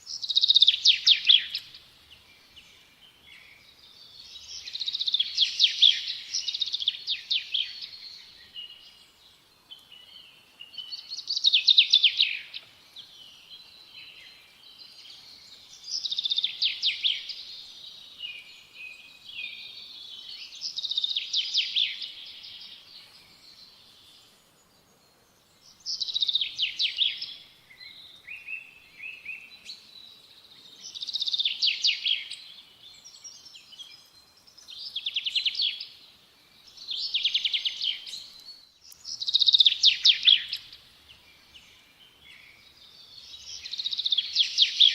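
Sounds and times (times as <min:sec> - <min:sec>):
songbird trilling: 0:36.8 - 0:40.8.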